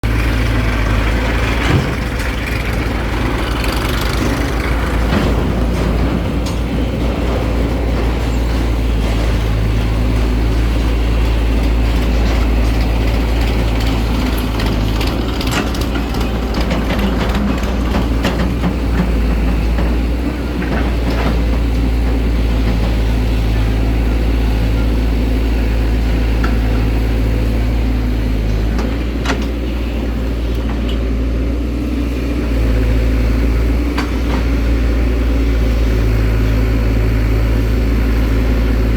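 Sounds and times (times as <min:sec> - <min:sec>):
diesel engine running: 0:00.0 - 0:38.9
knocks and clanks: 0:00.1 - 0:25.0, 0:25.6 - 0:31.3.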